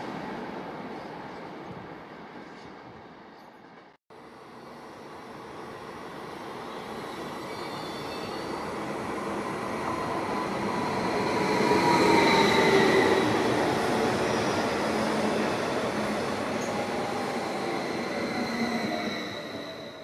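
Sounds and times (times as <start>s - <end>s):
electric train passing: 4.2s - 20.0s.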